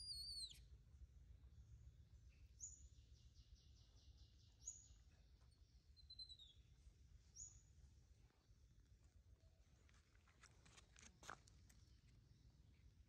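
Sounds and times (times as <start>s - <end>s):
bird trill: 0.0s - 0.6s, 6.0s - 6.6s
bird chirps: 0.0s - 0.7s, 2.3s - 6.7s
faint low outdoor rumble: 0.0s - 13.0s.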